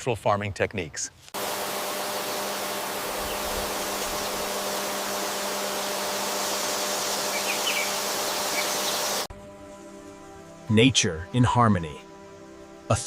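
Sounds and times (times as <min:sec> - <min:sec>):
steady hiss: 0:01.4 - 0:10.9
faint high chirps: 0:07.0 - 0:09.2.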